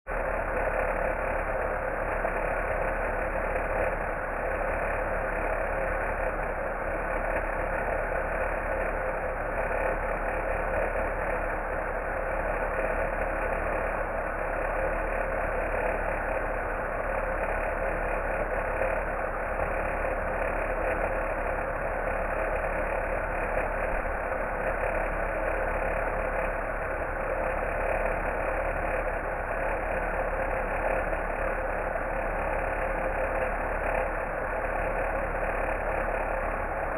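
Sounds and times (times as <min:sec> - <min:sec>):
laptop fan abnormal noise: 0:00.1 - 0:36.9.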